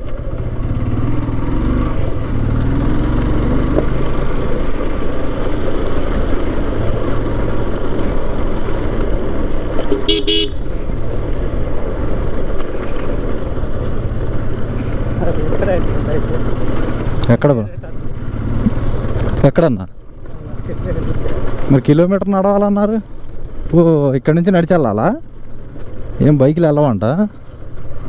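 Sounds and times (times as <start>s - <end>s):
motorcycle engine and road noise: 0.0s - 28.0s
motorcycle horn toot: 9.8s - 10.8s.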